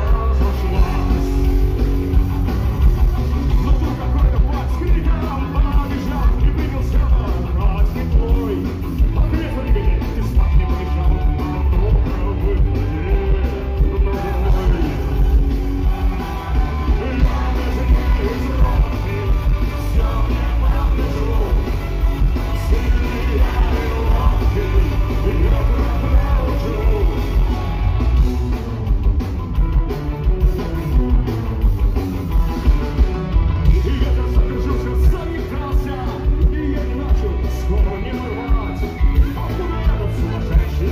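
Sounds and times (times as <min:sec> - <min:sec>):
person singing: 0:00.0 - 0:01.9, 0:03.5 - 0:27.8
punk rock band playing live: 0:00.0 - 0:40.9.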